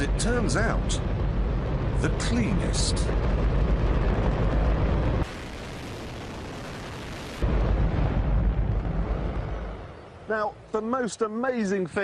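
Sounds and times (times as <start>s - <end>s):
rocket engine roaring: 0.0s - 10.3s.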